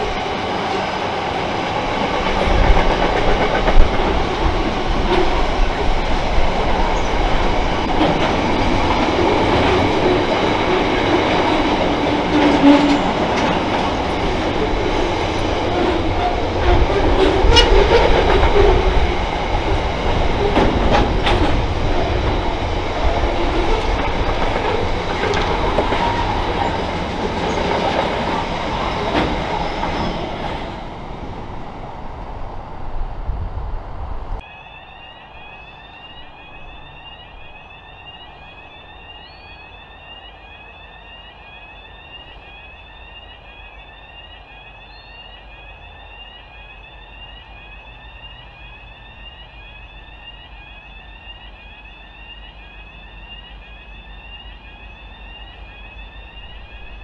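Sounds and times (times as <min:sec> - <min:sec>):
steel wheels on rails: 0:00.0 - 0:32.0.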